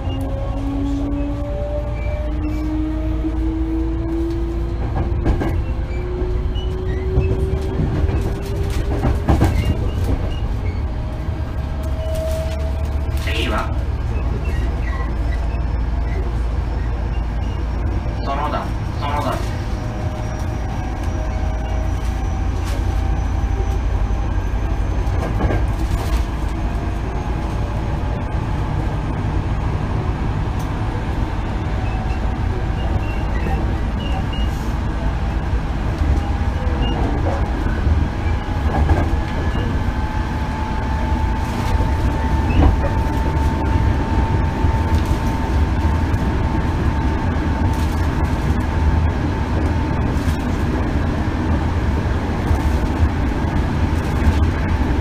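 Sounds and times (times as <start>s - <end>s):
wheels rumbling on rail: 0.0s - 55.0s.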